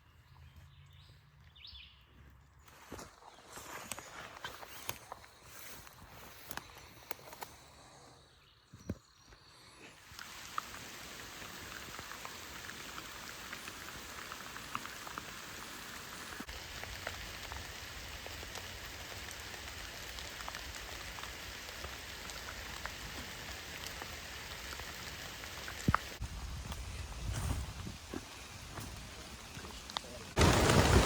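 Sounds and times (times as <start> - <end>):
steady rain hiss: 9.4 - 31.0.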